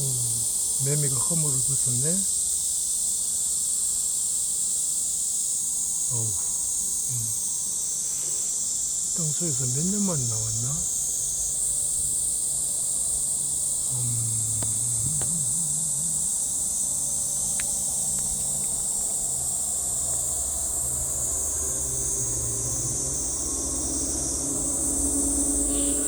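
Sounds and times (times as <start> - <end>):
cicadas droning: 0.0 - 26.0
faint low hum: 9.3 - 26.0.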